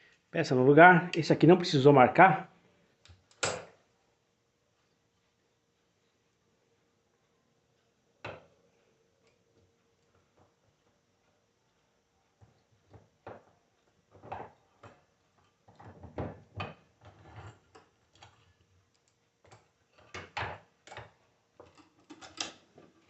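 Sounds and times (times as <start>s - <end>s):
metal parts clicking and knocking: 17.1s - 22.7s.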